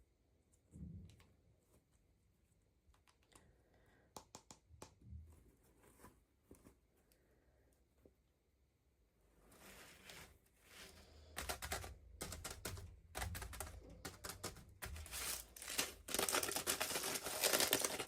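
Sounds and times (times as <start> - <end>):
packaging crinkling: 14.3 - 18.0.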